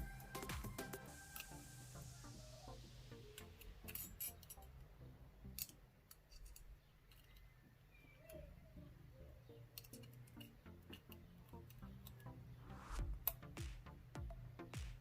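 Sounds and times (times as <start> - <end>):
soft background music: 0.0 - 5.9, 7.4 - 15.0
lock picks clicking in padlock: 3.4 - 4.7.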